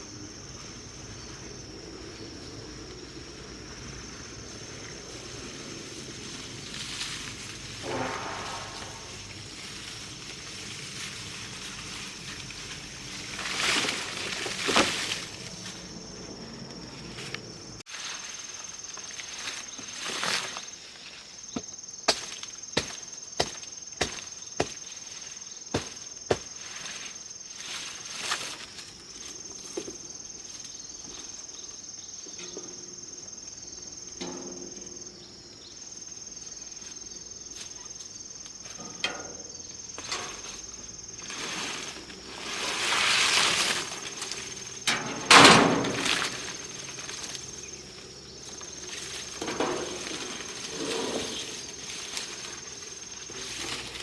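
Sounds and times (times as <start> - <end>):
insects droning: 0.0 - 54.0
rustling: 4.0 - 16.1, 39.8 - 54.0.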